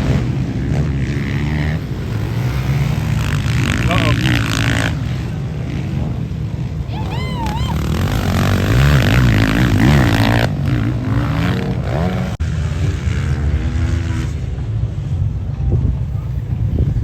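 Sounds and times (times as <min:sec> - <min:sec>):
motocross bikes revving: 0:00.0 - 0:15.4.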